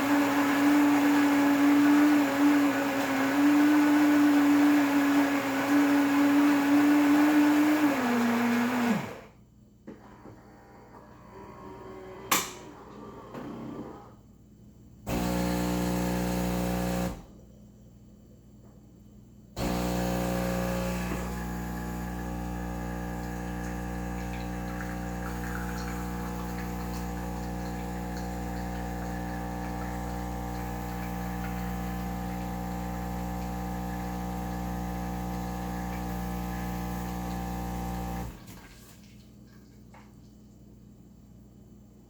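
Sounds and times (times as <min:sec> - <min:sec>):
motor hum: 0:15.1 - 0:17.3, 0:19.6 - 0:38.4
pump hum: 0:15.1 - 0:17.3, 0:19.6 - 0:39.6.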